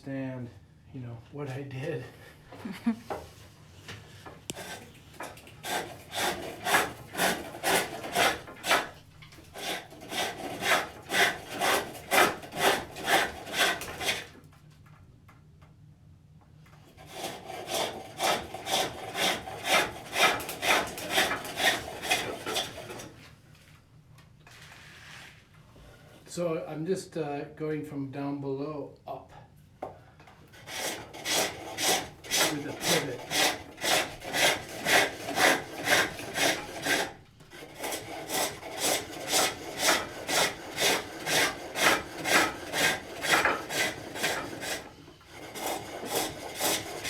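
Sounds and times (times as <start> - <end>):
hook tool scraping wood on lathe: 4.2 - 14.4, 16.8 - 23.3, 30.5 - 47.0.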